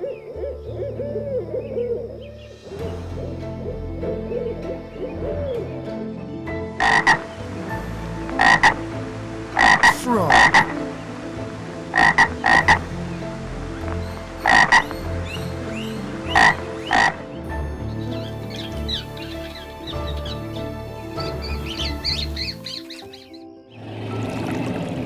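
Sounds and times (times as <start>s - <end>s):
frog croaking: 6.8s - 23.4s.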